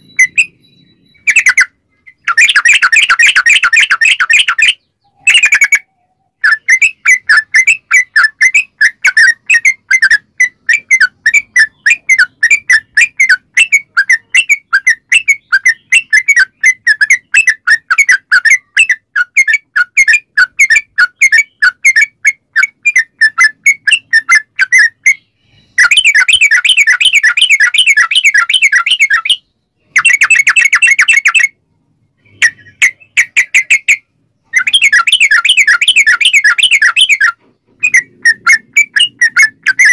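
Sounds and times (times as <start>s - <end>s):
bird singing bubbly notes: 32.2s - 39.9s.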